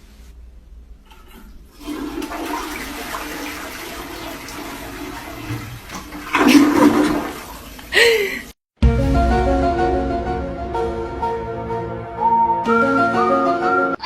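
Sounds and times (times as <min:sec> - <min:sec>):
rushing water: 0:01.2 - 0:08.1.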